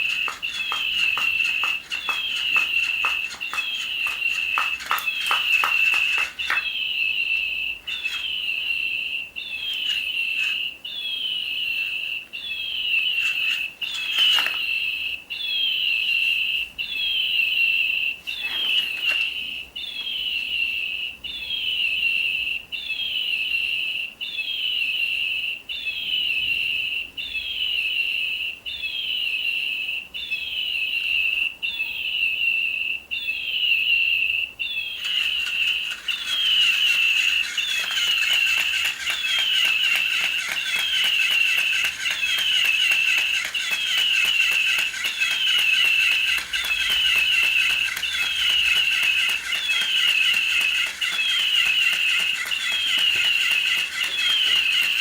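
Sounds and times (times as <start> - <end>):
rapid clicking: 0.0 - 6.7, 35.0 - 55.0
toy bird chirping electronically: 0.0 - 26.6, 27.2 - 55.0.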